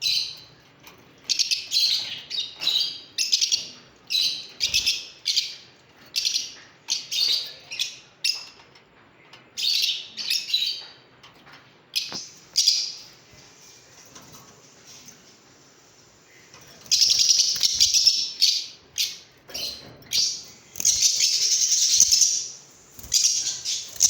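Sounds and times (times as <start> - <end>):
lovebirds chirping shrilly: 16.3 - 24.0.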